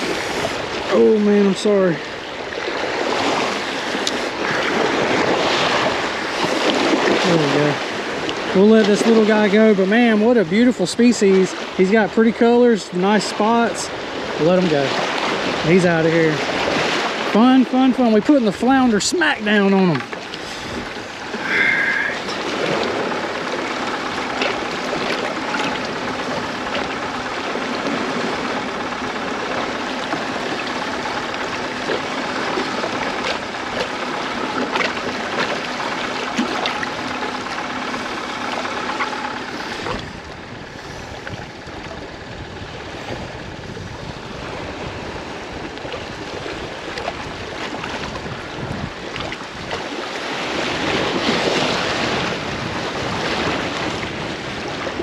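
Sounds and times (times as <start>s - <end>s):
water lapping against a seawall: 0.0s - 55.0s
steady low hum: 18.0s - 51.2s.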